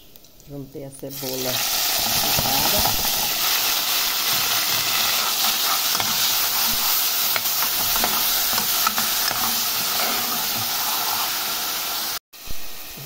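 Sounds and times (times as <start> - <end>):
onion sizzling in hot oil: 1.1 - 13.0
metal spoon stirring in pan: 1.5 - 11.8.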